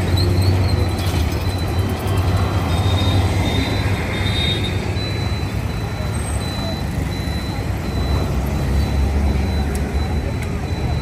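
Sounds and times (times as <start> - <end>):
metro train rumbling: 0.0 - 6.3
faint high wheel squeal: 0.0 - 11.0.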